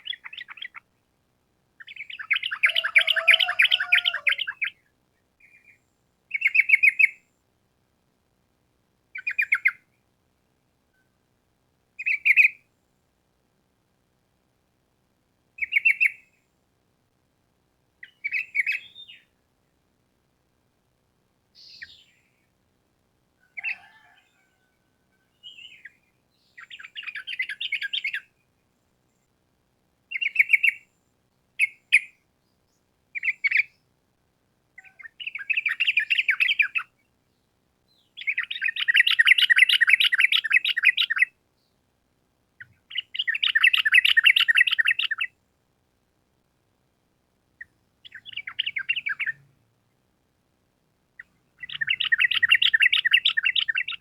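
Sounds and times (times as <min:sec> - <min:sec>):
bird chattering calls: 0:01.8 - 0:04.7, 0:38.2 - 0:41.3, 0:42.6 - 0:45.3, 0:51.2 - 0:54.0.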